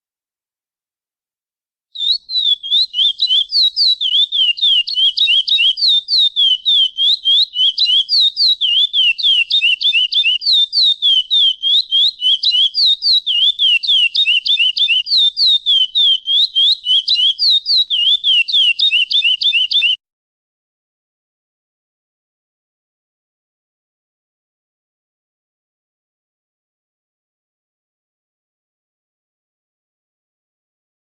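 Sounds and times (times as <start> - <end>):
finch singing whistled notes: 2.0 - 20.0.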